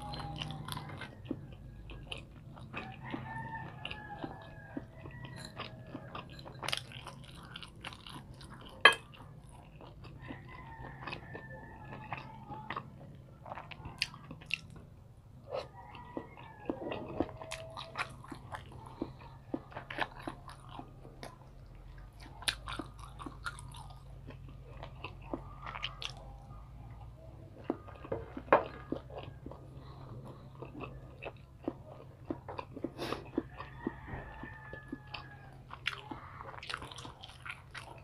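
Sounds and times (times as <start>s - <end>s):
chewing and mouth clicks: 0.0s - 38.0s.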